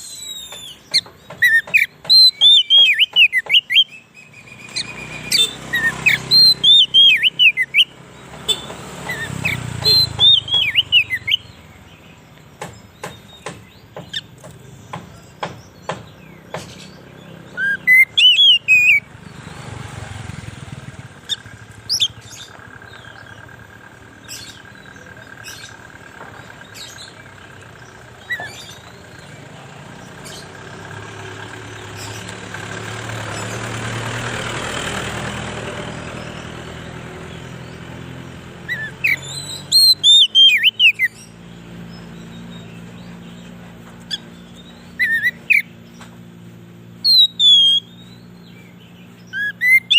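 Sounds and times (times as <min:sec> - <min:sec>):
short bird chirps and clicks: 0:00.0 - 0:11.6, 0:38.7 - 0:49.9
bird song whistled notes: 0:00.0 - 0:49.9.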